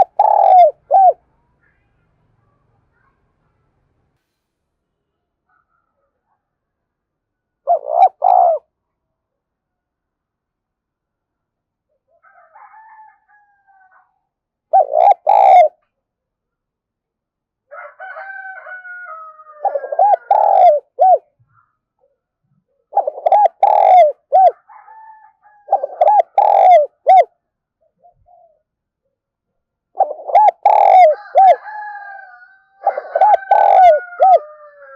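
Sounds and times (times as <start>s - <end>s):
dove cooing: 0.0s - 1.2s, 7.7s - 8.7s, 14.7s - 15.8s, 19.6s - 21.3s, 22.9s - 24.9s, 25.6s - 27.3s, 27.9s - 28.7s, 30.0s - 31.9s, 32.8s - 34.9s
distant rooster crowing: 12.2s - 14.2s, 17.7s - 20.8s, 24.4s - 26.8s, 30.4s - 34.9s.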